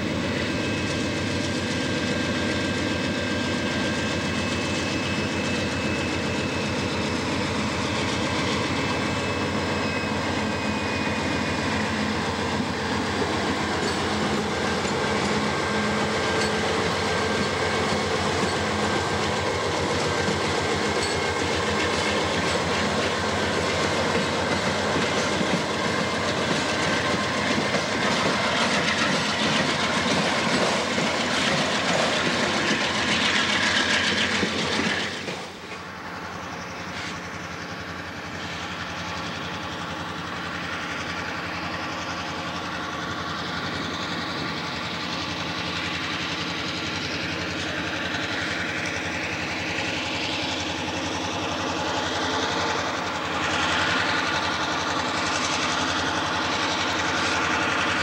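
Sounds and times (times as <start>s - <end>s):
diesel locomotive engine running: 0.0s - 58.0s
train wheels clicking over rail joints: 0.0s - 58.0s
wheels squealing: 0.5s - 39.5s.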